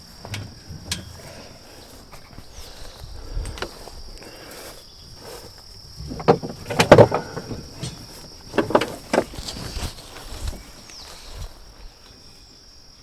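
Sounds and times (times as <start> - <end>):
dull knocks and clunks: 0.0 - 2.2, 5.9 - 10.8
insects droning: 0.0 - 13.0.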